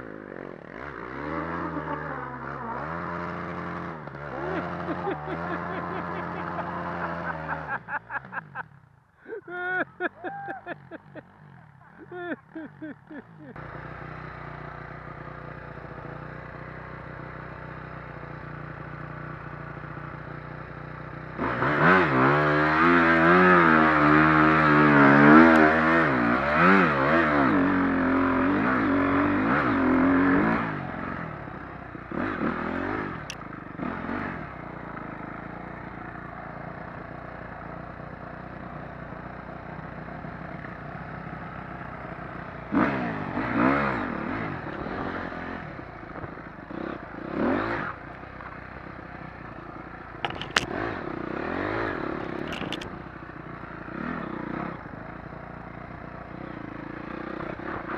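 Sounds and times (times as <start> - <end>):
dirt bike engine revving: 0.0 - 8.6, 21.2 - 38.6, 41.4 - 48.1, 49.1 - 57.9.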